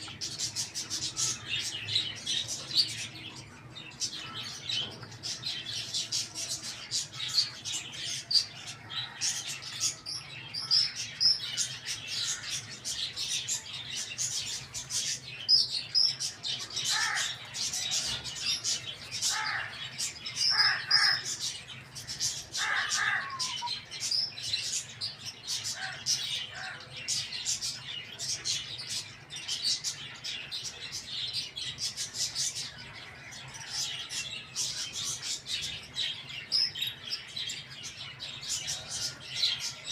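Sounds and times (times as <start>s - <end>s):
small birds chirping: 0.0s - 39.9s
lower bird calls: 22.5s - 23.9s.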